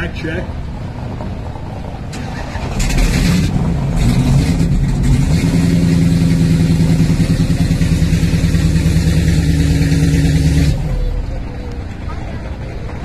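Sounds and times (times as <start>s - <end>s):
car engine idling: 0.6s - 13.0s.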